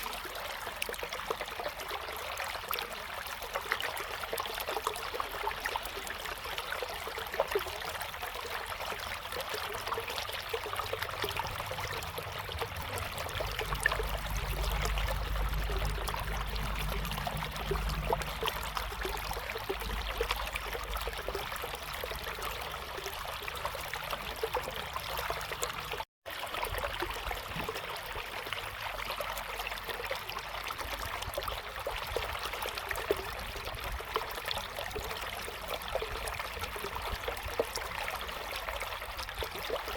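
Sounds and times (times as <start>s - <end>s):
river water babbling: 0.0s - 39.9s
low rumble: 10.6s - 24.4s.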